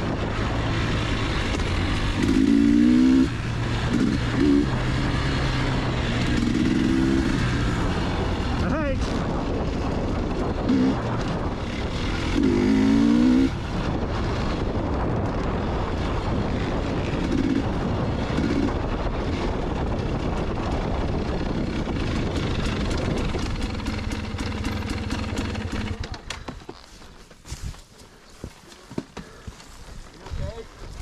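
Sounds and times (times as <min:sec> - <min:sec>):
dirt bike engine revving: 0:00.0 - 0:26.3.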